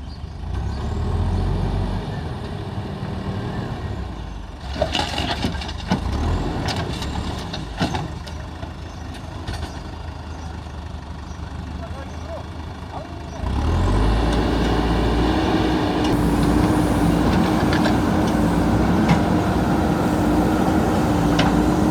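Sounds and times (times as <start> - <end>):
diesel engine running: 5.2 - 21.9.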